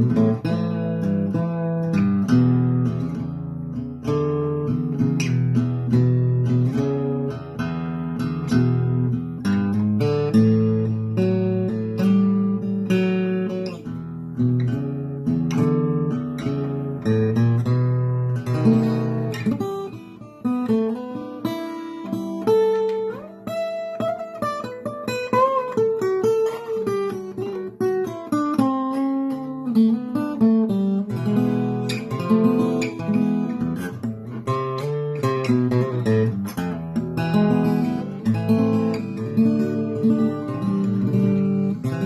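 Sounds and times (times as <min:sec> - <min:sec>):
acoustic guitar strummed: 0:00.0 - 0:42.0.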